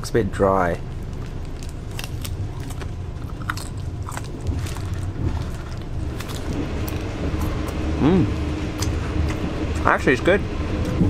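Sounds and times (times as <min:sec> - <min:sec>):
steady low rumble: 0:00.0 - 0:11.0
person chewing mango: 0:00.8 - 0:09.5.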